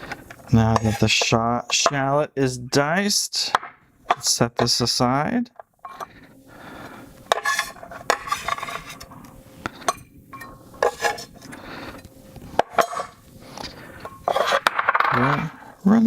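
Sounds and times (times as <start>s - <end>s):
dishes and utensils clinking: 7.3s - 9.1s, 9.8s - 11.3s, 12.6s - 13.2s, 14.0s - 15.4s.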